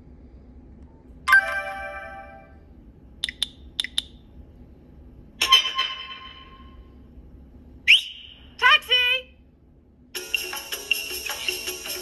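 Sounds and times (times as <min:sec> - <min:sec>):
bright multi-note phone chime: 0:01.3 - 0:02.6.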